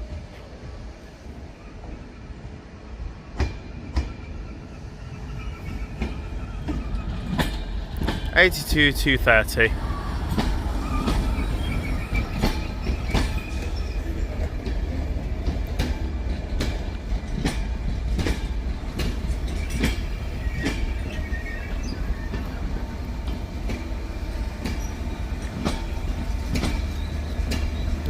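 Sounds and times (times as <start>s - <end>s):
train rumble: 0.0s - 28.0s
train wheels clicking over rail joints: 5.6s - 28.0s
faint wheel squeal: 9.9s - 14.4s.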